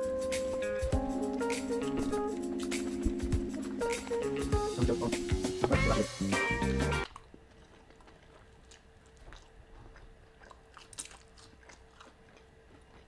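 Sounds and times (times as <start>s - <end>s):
chewing crispy fried chicken: 7.0s - 13.0s.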